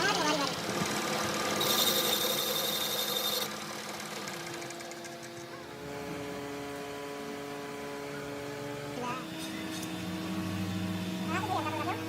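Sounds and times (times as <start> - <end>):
motor hum: 0.0 - 12.0
thin whine: 1.6 - 3.6.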